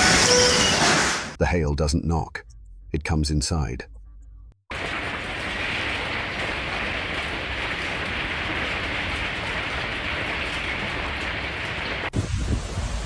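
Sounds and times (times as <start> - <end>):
hailstones pouring down: 4.7 - 12.1
low wind rumble and gusts: 12.0 - 13.0.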